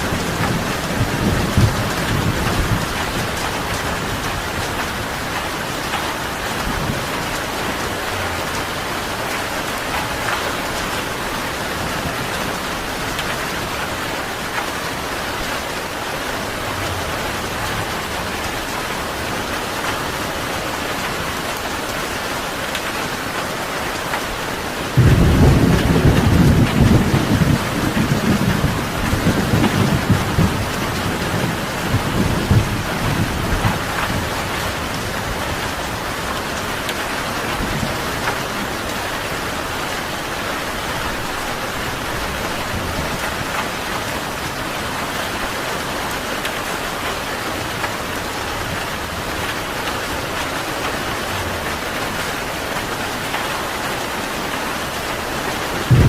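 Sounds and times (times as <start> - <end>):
loud thunderclap: 0.0 - 4.6, 25.0 - 35.0, 55.8 - 56.0
thunder rumbling: 0.0 - 19.9, 24.9 - 44.6, 55.6 - 56.0
heavy rain: 0.0 - 56.0.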